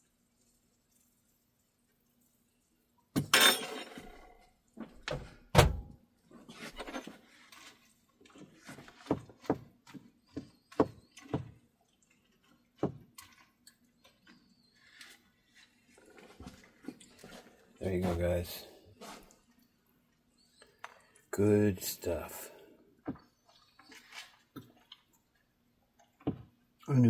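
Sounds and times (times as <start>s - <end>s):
dishes and utensils clattering: 3.2s - 4.4s.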